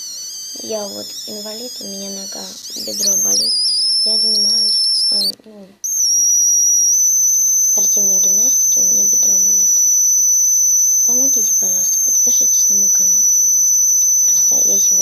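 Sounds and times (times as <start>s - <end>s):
steady high-pitched tone: 0.0s - 15.0s.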